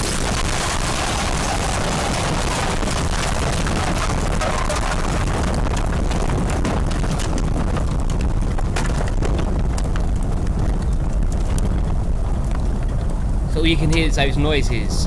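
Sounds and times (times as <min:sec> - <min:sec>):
loud rushing wind: 0:00.0 - 0:15.0
debris knocking and clicking: 0:04.5 - 0:13.2.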